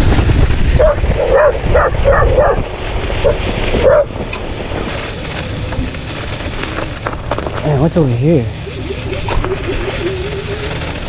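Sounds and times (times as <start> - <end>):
dog barking: 0.8 - 4.2.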